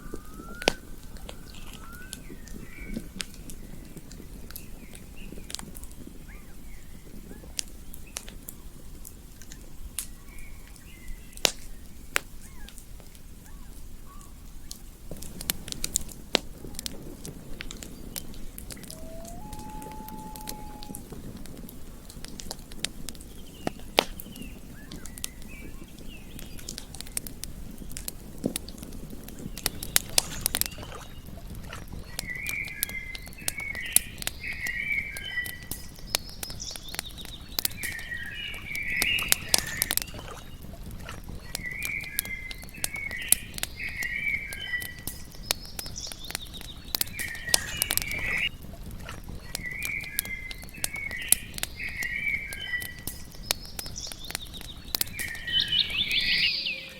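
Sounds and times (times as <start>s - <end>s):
campfire crackling and popping: 0.0s - 56.9s
chirping animal calls: 17.8s - 21.4s, 55.0s - 56.9s.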